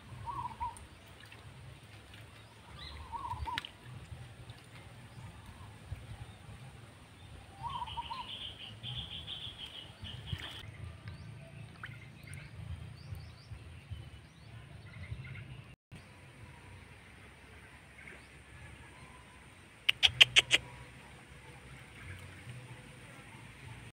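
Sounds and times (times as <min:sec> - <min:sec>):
small birds chirping: 0:19.8 - 0:20.6.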